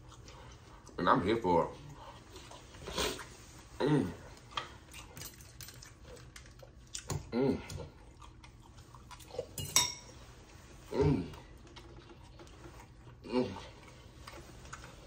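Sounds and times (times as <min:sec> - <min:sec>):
person chewing food: 0:00.0 - 0:01.0, 0:04.2 - 0:15.0.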